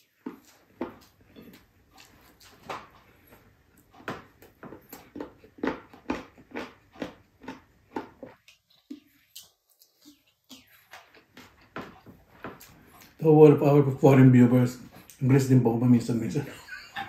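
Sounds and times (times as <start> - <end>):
person chewing with lip smacks: 0.0 - 13.2, 14.8 - 15.2.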